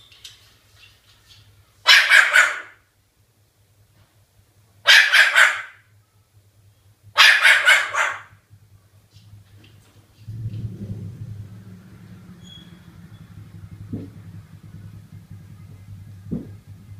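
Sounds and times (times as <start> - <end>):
cockatoo mimicking dog barks: 1.8 - 2.8, 4.8 - 5.8, 7.1 - 8.4
low hum: 8.3 - 16.9.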